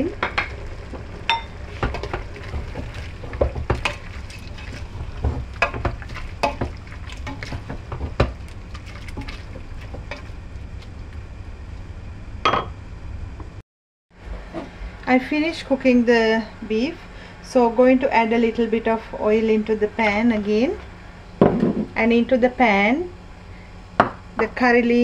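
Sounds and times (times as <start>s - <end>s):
low sizzle: 0.0s - 13.6s.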